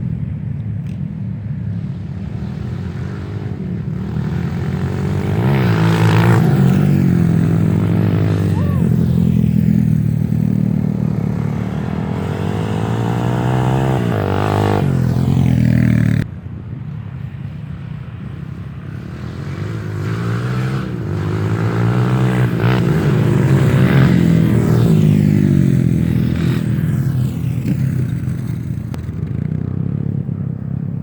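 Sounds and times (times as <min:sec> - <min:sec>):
dirt bike engines revving: 0:00.0 - 0:16.3, 0:17.0 - 0:31.0.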